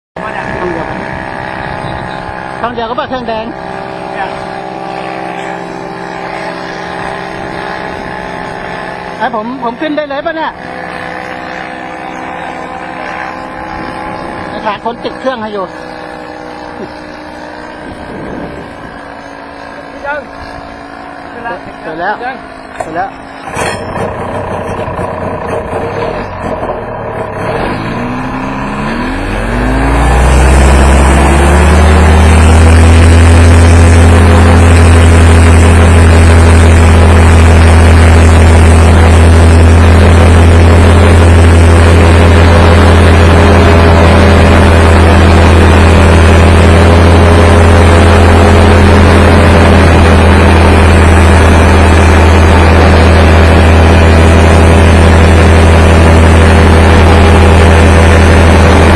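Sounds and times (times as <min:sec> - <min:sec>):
paramotor engine revving: 0:00.2 - 0:58.9.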